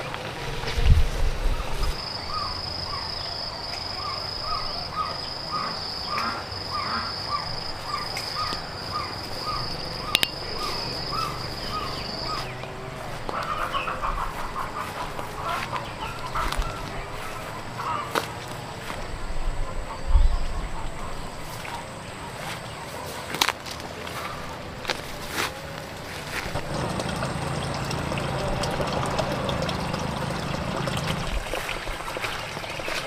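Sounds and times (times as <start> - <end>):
birds calling: 1.5 - 33.0.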